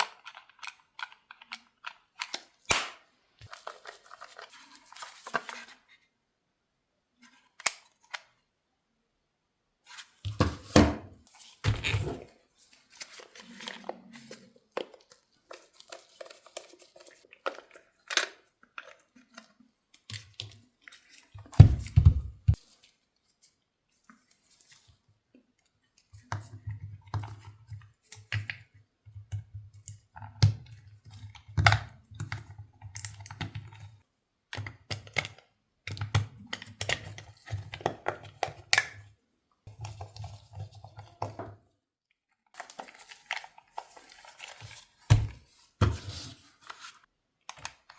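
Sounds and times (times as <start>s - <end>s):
plastic packaging being handled: 3.4s - 5.9s, 11.2s - 19.5s, 42.6s - 47.1s.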